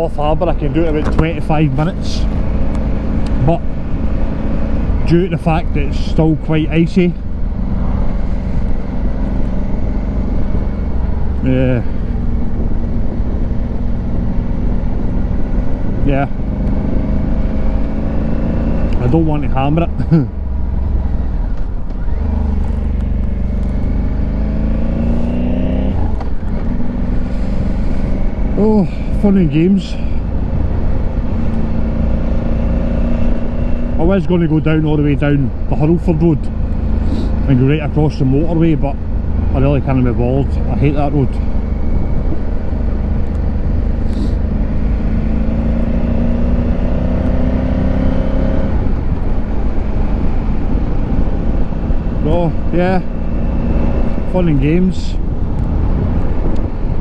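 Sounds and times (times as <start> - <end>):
motorcycle engine running: 0.0 - 57.0
road and wind noise: 0.0 - 57.0
wind on helmet microphone: 41.4 - 45.0, 53.1 - 57.0.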